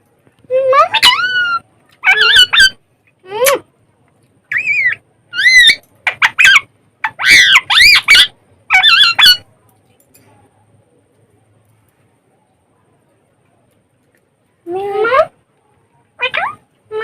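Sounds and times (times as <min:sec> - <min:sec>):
parrot shrill calls: 0:00.9 - 0:02.8, 0:04.5 - 0:09.5, 0:16.2 - 0:17.0.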